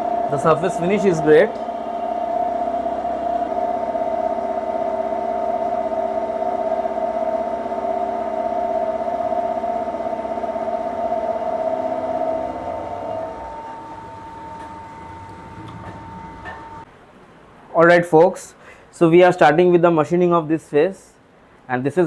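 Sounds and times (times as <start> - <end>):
milling machine cutting metal: 0.0 - 16.8.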